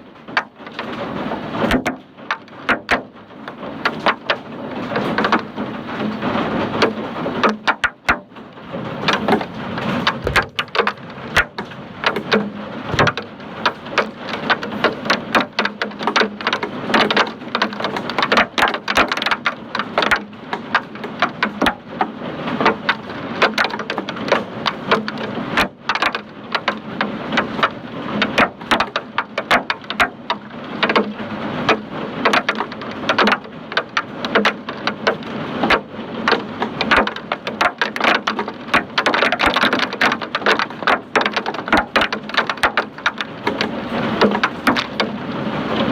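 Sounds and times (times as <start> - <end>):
hailstones clattering: 0.1 - 45.9.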